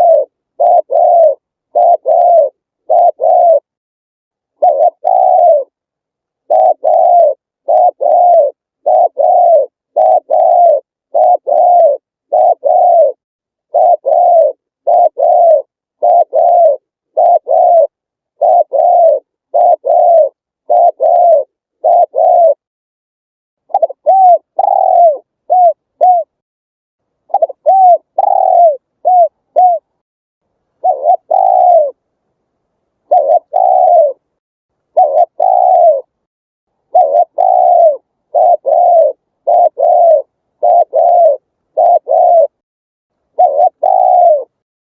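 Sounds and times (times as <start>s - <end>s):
dove cooing: 0.0s - 3.7s, 4.6s - 5.8s, 6.4s - 22.7s, 23.7s - 26.4s, 27.3s - 30.0s, 30.8s - 32.0s, 33.0s - 34.2s, 34.9s - 36.1s, 36.9s - 42.6s, 43.3s - 44.6s.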